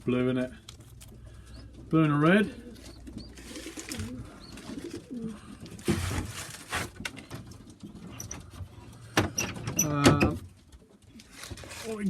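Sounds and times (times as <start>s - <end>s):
pigeons cooing: 1.1s - 6.2s.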